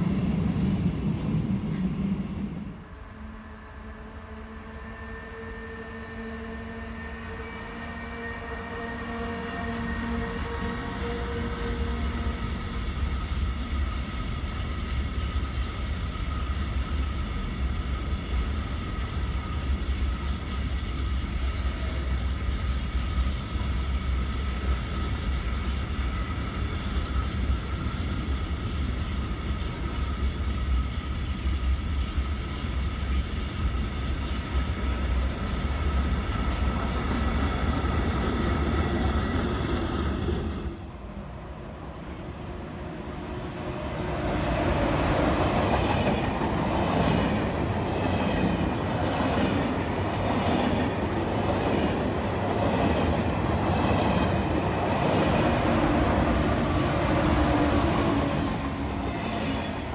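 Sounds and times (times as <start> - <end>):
electric locomotive whine: 0.0 - 59.9
freight train rumble and wheel clatter: 0.0 - 59.9.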